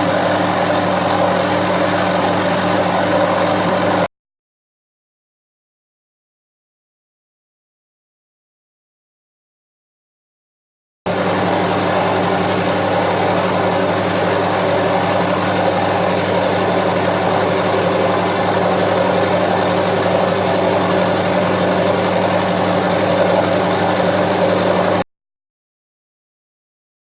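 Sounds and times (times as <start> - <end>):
milling machine running: 0.0 - 4.1, 11.1 - 25.0.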